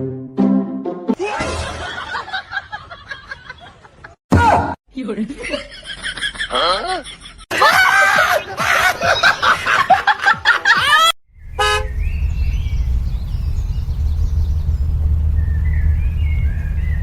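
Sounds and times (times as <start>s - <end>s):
low vehicle rumble: 11.3s - 17.0s
short car horn toot: 11.6s - 12.0s.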